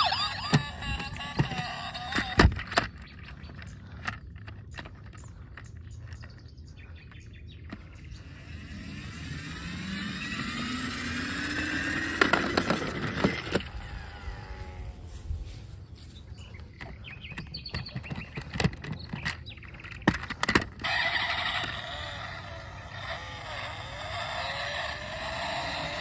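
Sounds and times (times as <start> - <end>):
motor whine rising in pitch: 0.0 - 3.4, 7.7 - 15.7, 20.8 - 26.0
sharp clicks and knocks: 16.8 - 20.9.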